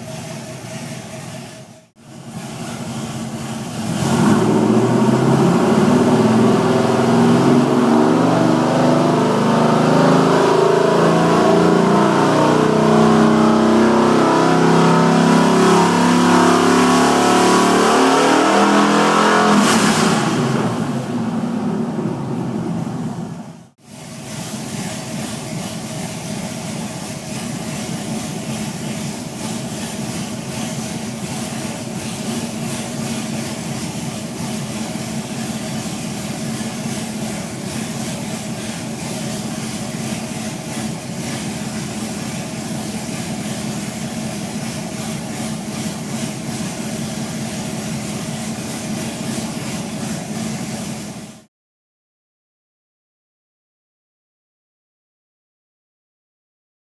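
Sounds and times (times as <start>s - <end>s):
pickup engine idling: 0.0s - 8.3s, 20.6s - 51.2s.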